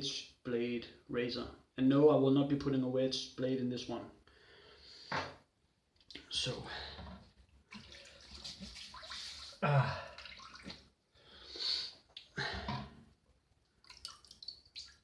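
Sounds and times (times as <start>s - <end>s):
water running and splashing: 7.7s - 10.8s, 13.8s - 15.0s.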